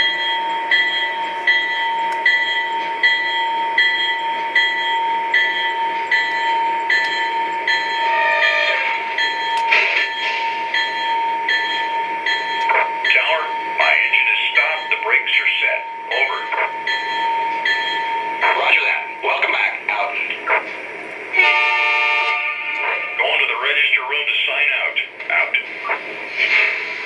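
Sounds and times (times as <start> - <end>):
regular ringing beat: 0.0 - 8.1, 9.1 - 19.2
model diesel locomotive sounds: 0.0 - 27.0.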